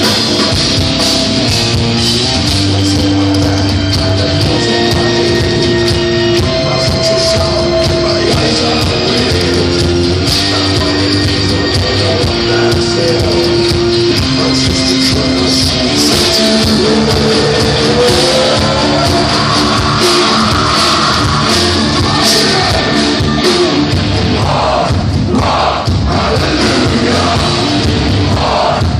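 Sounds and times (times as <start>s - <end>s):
heavy metal band playing live: 0.0s - 28.9s.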